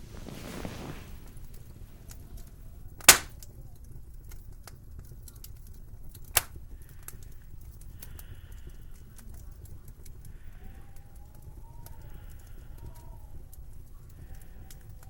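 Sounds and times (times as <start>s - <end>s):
sharp cracks: 3.0s - 3.4s, 6.3s - 6.6s.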